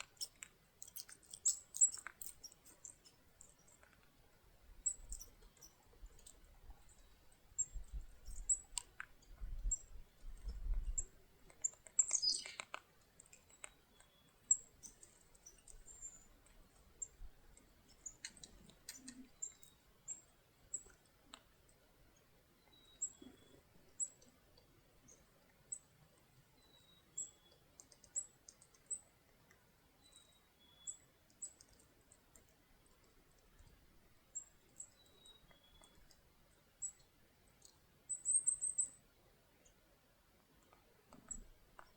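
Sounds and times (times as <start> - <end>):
faint clicks: 10.4 - 16.6, 27.5 - 29.6
chickadees calling: 11.6 - 12.8
soft whistled bird notes: 12.0 - 12.6, 30.0 - 31.1.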